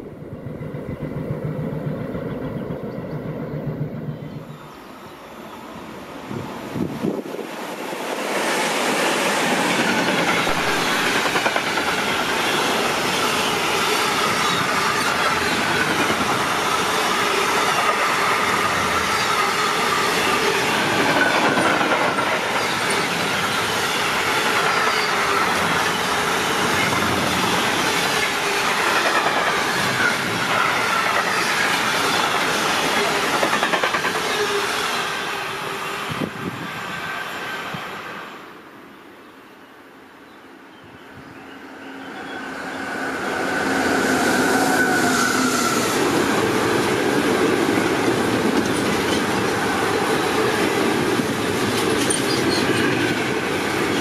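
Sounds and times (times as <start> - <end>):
train wheels clattering: 8.9 - 34.7, 44.8 - 54.0
wheels squealing: 51.5 - 54.0.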